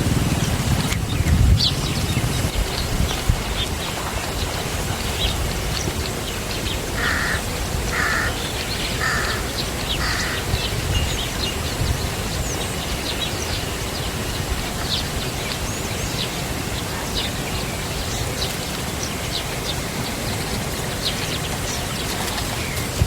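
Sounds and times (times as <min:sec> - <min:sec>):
steady low rushing noise: 0:00.0 - 0:03.6
harsh caw-like bird calls: 0:07.0 - 0:10.7.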